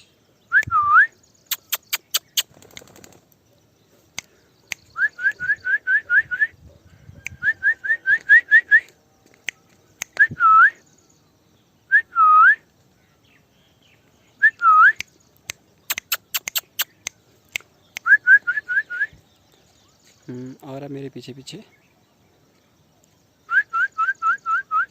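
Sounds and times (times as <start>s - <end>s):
person whistling: 0.5s - 1.1s, 5.0s - 6.5s, 7.3s - 8.9s, 10.2s - 10.8s, 11.9s - 12.6s, 14.4s - 15.0s, 18.0s - 19.2s, 23.5s - 24.9s
sharp clicks: 1.5s - 3.4s, 8.2s - 10.3s, 15.0s - 18.1s.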